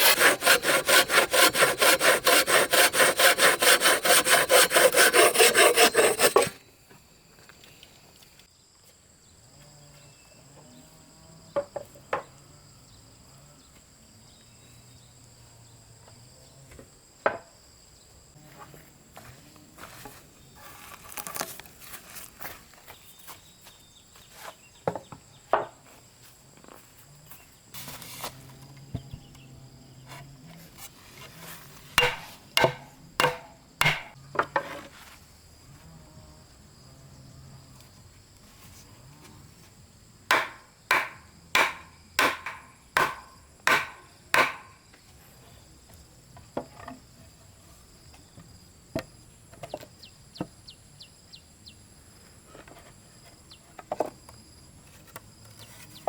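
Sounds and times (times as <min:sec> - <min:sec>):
high insect drone: 0:00.1 - 0:08.7
hammer striking wood: 0:32.0 - 0:34.2, 0:40.3 - 0:44.8.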